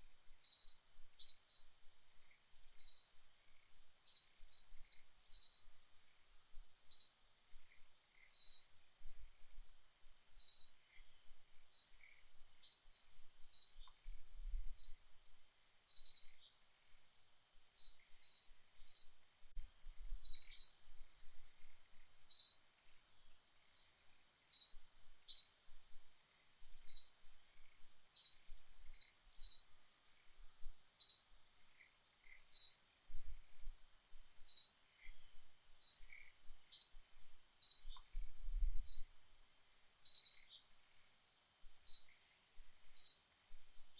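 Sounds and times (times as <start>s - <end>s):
faint high-pitched hum: 0.0s - 43.9s
bird chirping: 0.4s - 5.8s, 6.4s - 8.8s, 10.2s - 14.0s, 14.6s - 15.0s, 15.9s - 16.6s, 17.8s - 19.2s, 20.2s - 20.8s, 22.3s - 22.6s, 23.6s - 25.6s, 26.8s - 30.3s, 31.0s - 32.9s, 34.3s - 37.0s, 37.6s - 39.1s, 40.0s - 40.7s, 41.8s - 42.2s, 42.9s - 43.3s.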